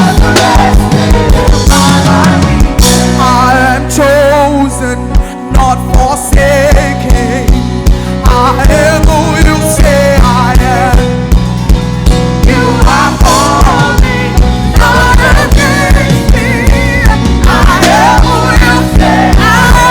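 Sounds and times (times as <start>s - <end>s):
person singing: 0.0s - 11.3s, 12.4s - 19.9s
band chords: 0.0s - 19.9s
kick drum beat: 8.3s - 19.9s.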